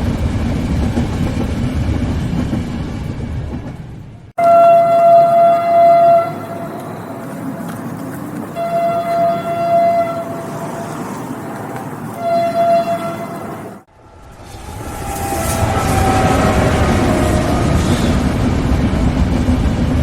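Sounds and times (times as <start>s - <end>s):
moving train rumble: 0.0s - 20.0s
train horn blasts: 4.4s - 7.2s, 8.6s - 10.9s, 12.2s - 18.4s.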